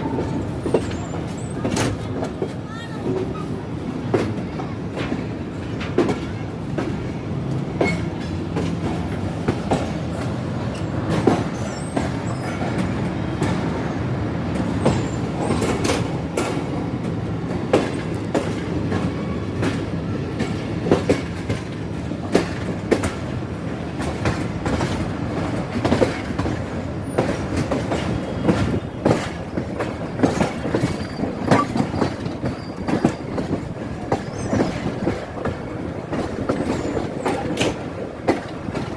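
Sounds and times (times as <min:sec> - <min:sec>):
train rumbling on rails: 0:00.0 - 0:38.9
wheels clacking over rail joints: 0:00.0 - 0:38.9
wheel squeal: 0:11.5 - 0:12.8, 0:30.1 - 0:33.5, 0:34.1 - 0:34.9.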